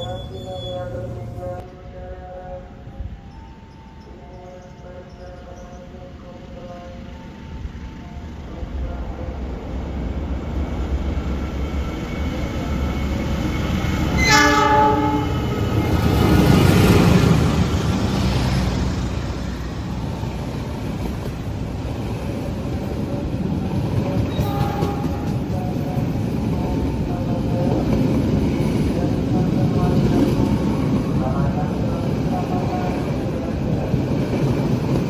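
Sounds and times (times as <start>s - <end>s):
train passing rumble: 0.0s - 35.0s
train horn blast: 14.1s - 16.7s, 24.2s - 26.1s.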